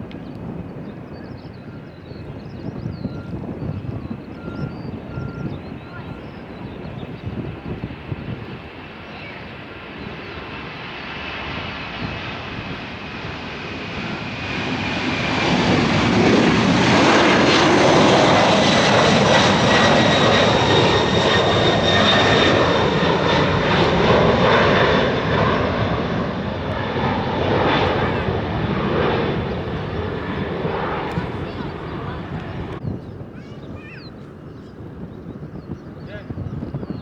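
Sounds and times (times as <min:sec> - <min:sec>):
jet aircraft passing overhead: 0:00.0 - 0:37.0
high engine whine: 0:14.0 - 0:32.8.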